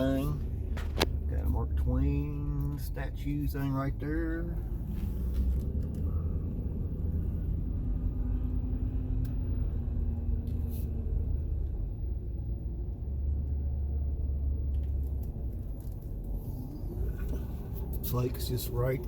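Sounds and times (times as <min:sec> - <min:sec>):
vehicle rumble from inside cab: 0:00.0 - 0:19.0.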